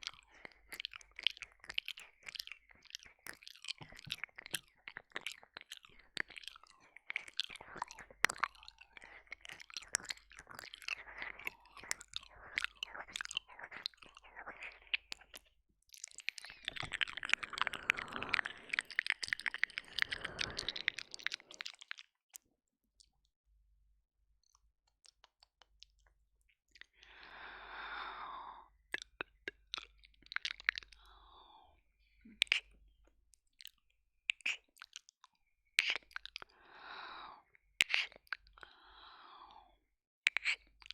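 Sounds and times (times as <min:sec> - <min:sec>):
lip smacks: 0:00.0 - 0:22.4, 0:28.9 - 0:31.2, 0:32.2 - 0:36.8, 0:37.8 - 0:38.9, 0:40.3 - 0:40.9
wet ear licking: 0:00.0 - 0:22.4, 0:28.9 - 0:31.1, 0:32.3 - 0:32.8, 0:33.6 - 0:36.6, 0:37.8 - 0:38.7, 0:40.3 - 0:40.9
tongue clicks: 0:00.0 - 0:23.3, 0:24.4 - 0:27.0, 0:28.9 - 0:31.5, 0:32.2 - 0:36.6, 0:37.8 - 0:38.8, 0:40.2 - 0:40.9.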